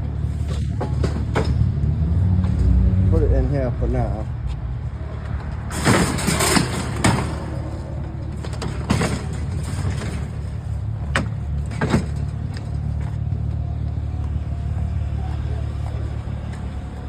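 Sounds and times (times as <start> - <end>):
vehicle engine idling: 6.7 - 17.0.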